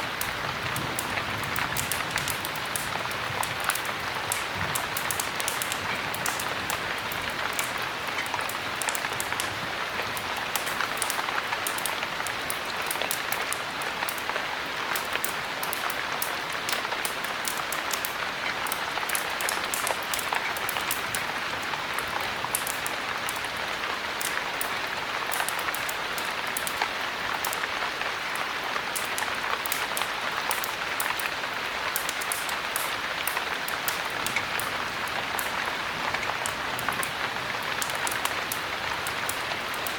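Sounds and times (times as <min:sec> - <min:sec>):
heavy rain: 0:00.0 - 0:39.9
small sharp ticks: 0:00.2 - 0:14.3, 0:14.9 - 0:21.3, 0:25.3 - 0:27.6, 0:28.9 - 0:37.2.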